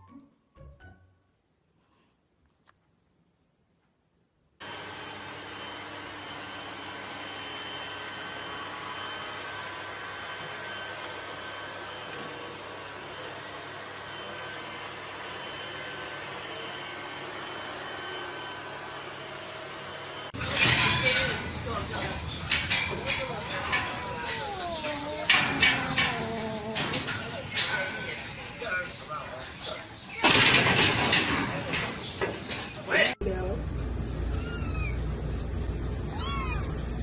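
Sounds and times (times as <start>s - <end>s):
machine whirring with high whine: 4.6s - 20.4s.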